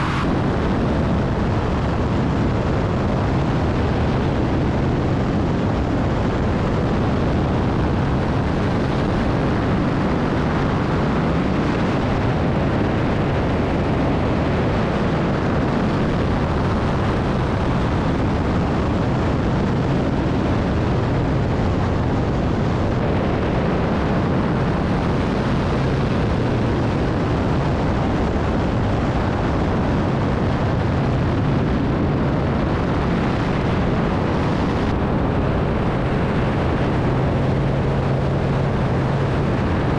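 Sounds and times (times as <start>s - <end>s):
heavy rushing wind: 0.0s - 39.9s.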